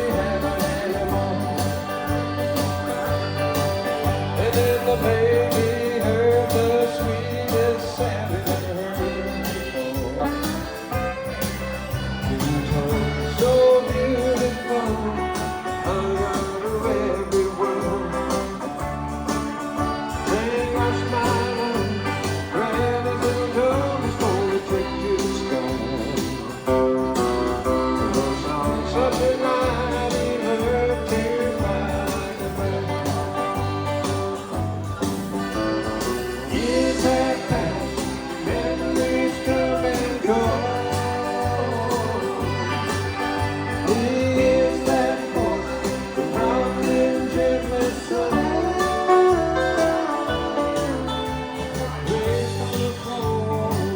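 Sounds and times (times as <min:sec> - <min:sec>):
person singing slow song: 0:00.0 - 0:11.2, 0:12.2 - 0:18.8, 0:19.5 - 0:35.0, 0:36.4 - 0:53.9
instrumental accompaniment: 0:00.0 - 0:53.9.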